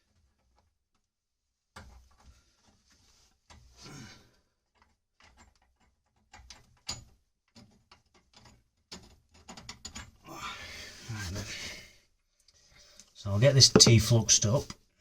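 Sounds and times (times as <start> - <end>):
tools and pipe fittings handled: 4.6 - 10.2.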